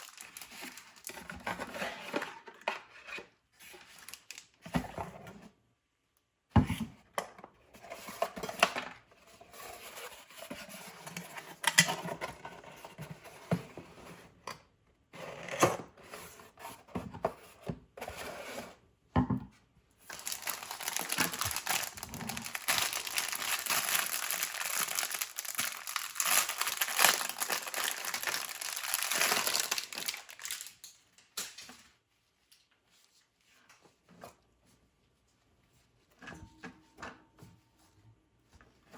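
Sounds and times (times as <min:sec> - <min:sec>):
plastic wrapping crinkling: 0:00.0 - 0:01.4, 0:03.8 - 0:04.6, 0:20.0 - 0:31.3.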